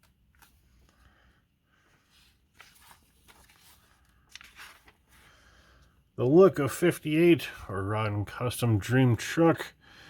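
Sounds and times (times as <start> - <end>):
paper pages rustling: 0.0 - 5.9.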